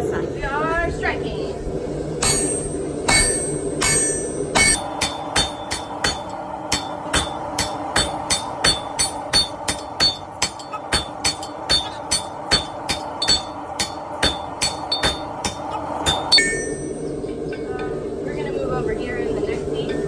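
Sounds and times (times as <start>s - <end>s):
hammer blows on steel over anvil: 2.2s - 17.9s.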